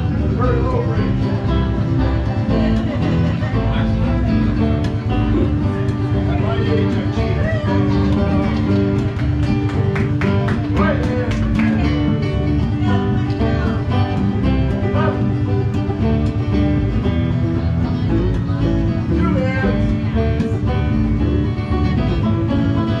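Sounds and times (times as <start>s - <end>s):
bluegrass string music: 0.0s - 23.0s
people's voices: 0.0s - 23.0s.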